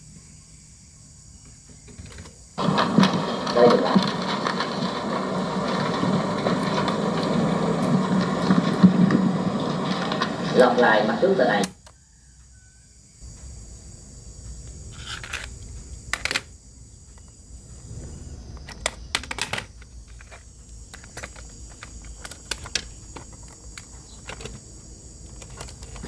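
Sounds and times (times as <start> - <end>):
sharp clicks and light knocks: 1.9 - 11.8
low hum: 2.6 - 11.7.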